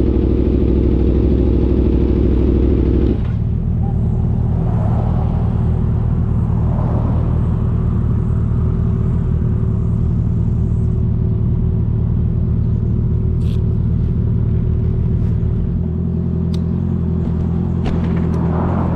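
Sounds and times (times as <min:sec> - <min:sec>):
motorcycle engine idling: 0:00.0 - 0:04.4, 0:07.5 - 0:18.1.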